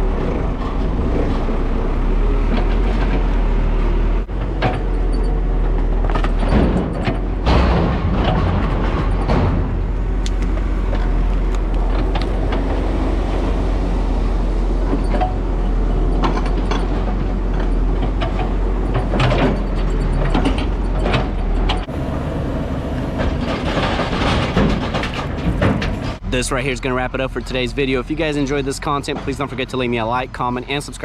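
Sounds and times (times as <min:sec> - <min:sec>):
diesel engine running: 0:00.0 - 0:30.4
knocks and clanks: 0:02.4 - 0:26.2.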